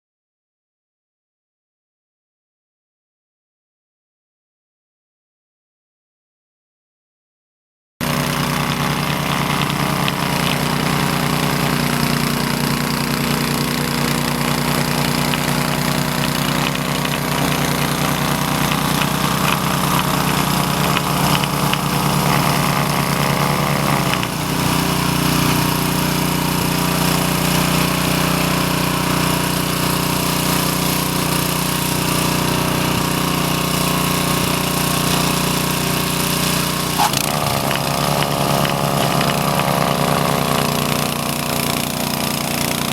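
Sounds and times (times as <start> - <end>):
snowblower engine running: 8.0 - 42.9.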